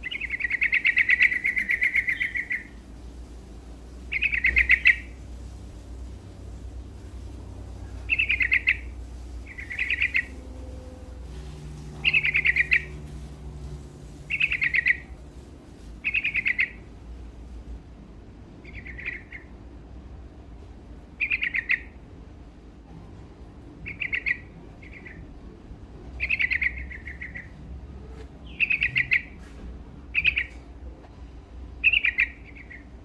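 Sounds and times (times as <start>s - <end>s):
bulbul singing: 0.0s - 2.8s, 4.1s - 5.2s, 7.7s - 13.1s, 14.2s - 15.2s, 16.0s - 16.8s, 18.6s - 19.5s, 21.2s - 22.0s, 23.8s - 25.3s, 26.2s - 27.6s, 28.4s - 29.4s, 30.1s - 30.6s, 31.8s - 32.9s
faint low hum: 0.0s - 33.0s.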